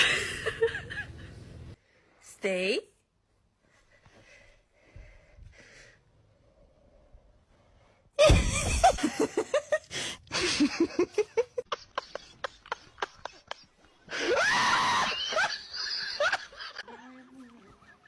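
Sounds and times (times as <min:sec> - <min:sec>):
loud thump: 0:08.2 - 0:09.2.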